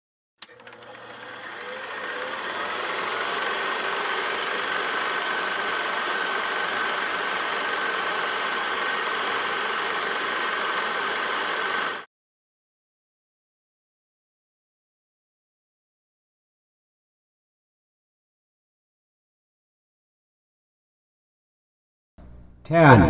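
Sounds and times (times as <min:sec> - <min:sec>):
click: 0:00.4 - 0:01.0.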